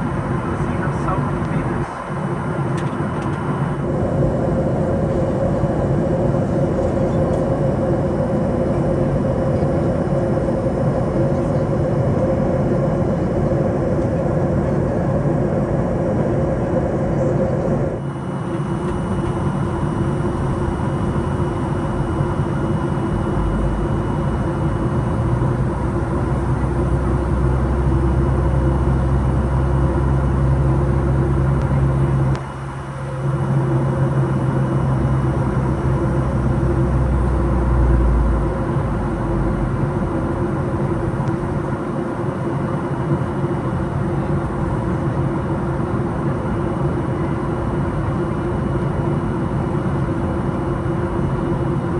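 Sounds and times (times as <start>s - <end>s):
airliner cabin engine rush: 0.0s - 51.9s.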